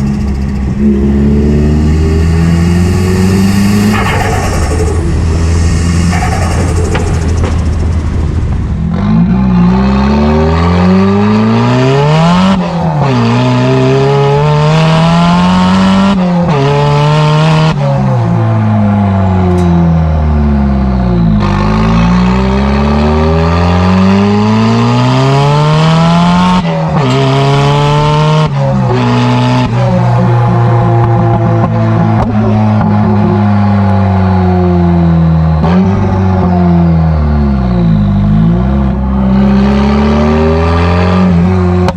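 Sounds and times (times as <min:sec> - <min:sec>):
car engine accelerating through gears: 0:00.0 - 0:41.9.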